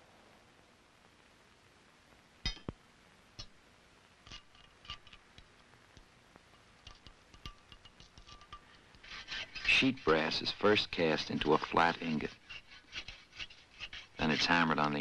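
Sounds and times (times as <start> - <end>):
tools tapping and clicking: 2.5 - 2.8, 6.8 - 9.0.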